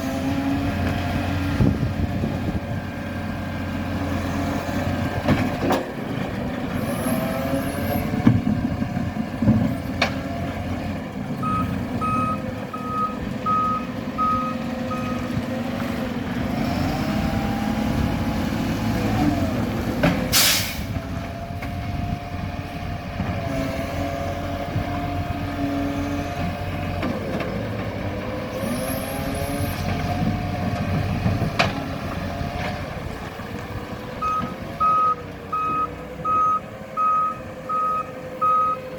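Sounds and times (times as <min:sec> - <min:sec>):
truck engine revving: 0:00.0 - 0:38.9
reversing alarm beeping: 0:11.4 - 0:15.3, 0:34.2 - 0:38.8
air brakes hissing: 0:20.3 - 0:21.0.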